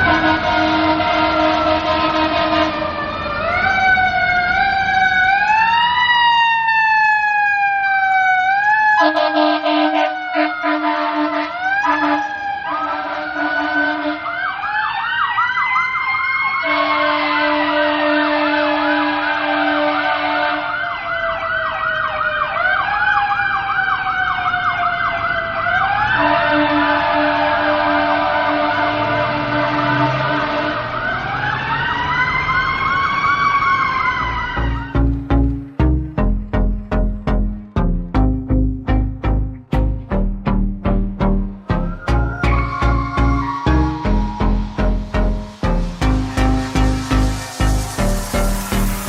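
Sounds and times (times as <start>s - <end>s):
air horn blasts: 0.0s - 2.9s, 9.0s - 14.4s, 16.6s - 20.8s, 26.2s - 31.1s, 41.7s - 49.0s
fire truck siren wailing: 0.0s - 49.0s.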